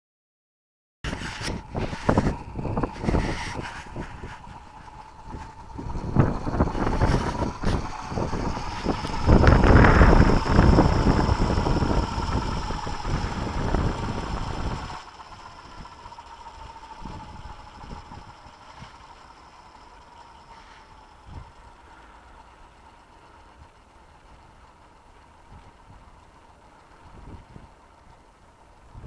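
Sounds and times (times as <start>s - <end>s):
wind buffeting microphone: 1.1s - 19.1s, 27.0s - 28.2s
model helicopter rotor whine: 1.1s - 29.0s.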